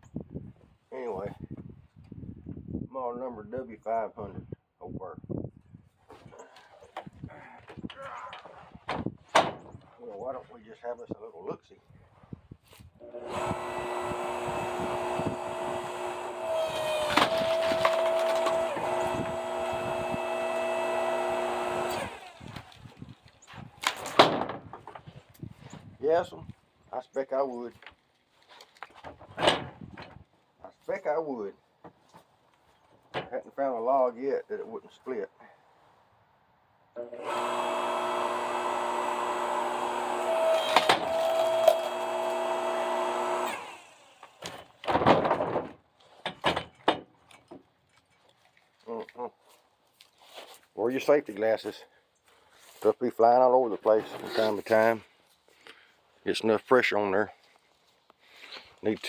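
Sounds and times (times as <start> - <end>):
log splitter motor whining: 13.0 - 23.0, 37.0 - 44.4
log splitting with sharp cracks: 16.8 - 19.0.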